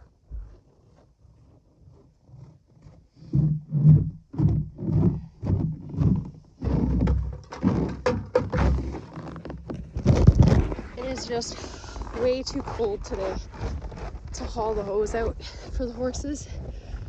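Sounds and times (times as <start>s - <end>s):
footsteps in snow: 8.7s - 17.0s.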